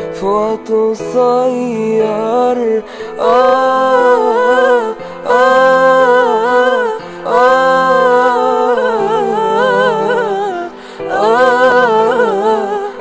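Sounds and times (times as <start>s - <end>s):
woman singing melismatic vocal: 3.1s - 13.0s
sustained accompaniment tones: 3.2s - 13.0s.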